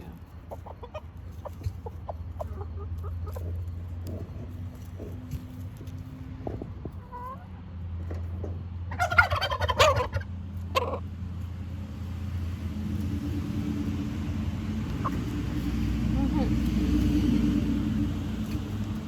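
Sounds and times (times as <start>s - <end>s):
low steady rumble: 0.0s - 19.0s
turkey gobbling: 0.5s - 3.6s, 8.9s - 11.1s, 13.8s - 19.0s.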